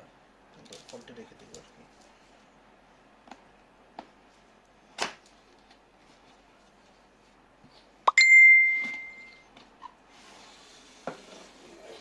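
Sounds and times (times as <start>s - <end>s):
ringing ding: 8.1s - 9.4s.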